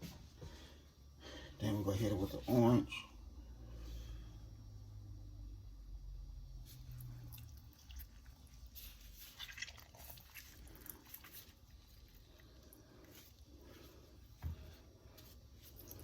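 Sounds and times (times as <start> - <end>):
juice dripping: 6.6 - 16.0
wet squishing: 6.7 - 14.5, 15.1 - 16.0.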